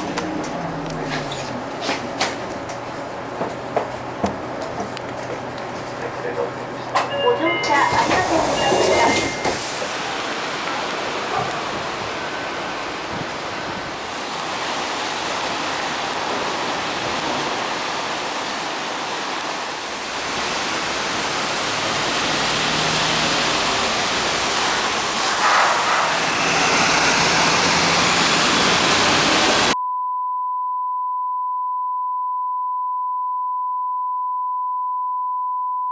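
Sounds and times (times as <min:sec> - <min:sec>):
steady test tone: 0:07.0 - 0:09.7
steady rushing noise: 0:19.7 - 0:29.8.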